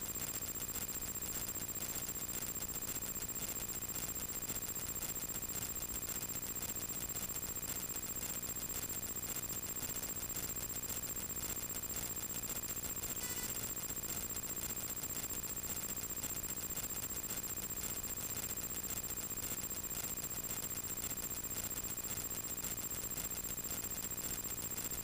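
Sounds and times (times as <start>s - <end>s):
high-pitched whine: 13.2s - 13.7s.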